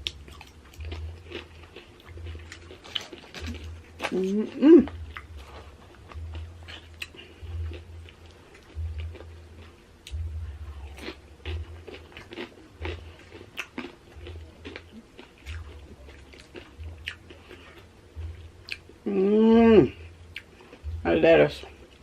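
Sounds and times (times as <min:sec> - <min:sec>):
crunchy chips chewing: 0:00.0 - 0:10.2, 0:10.8 - 0:17.9
short hummed vocal sound: 0:04.0 - 0:05.6, 0:19.0 - 0:20.1.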